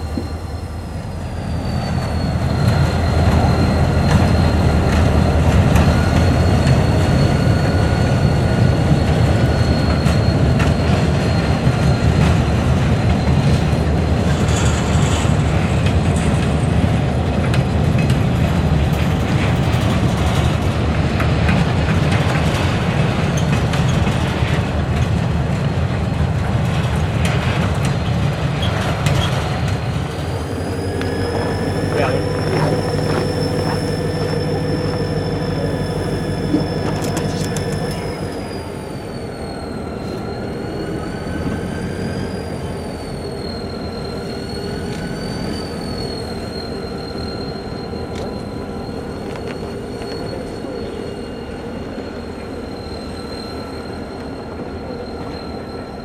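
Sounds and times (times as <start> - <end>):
freight train rumbling past: 0.0 - 56.0
thin high whine: 30.0 - 56.0.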